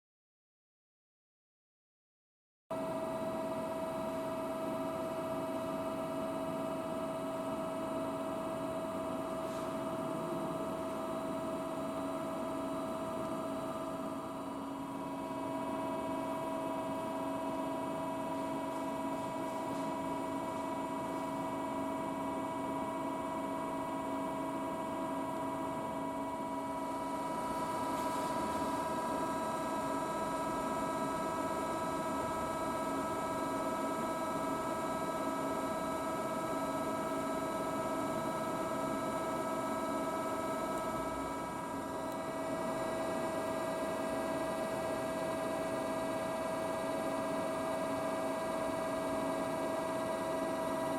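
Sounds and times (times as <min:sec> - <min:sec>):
machine motor and hydraulic pump hum: 0:02.8 - 0:50.9.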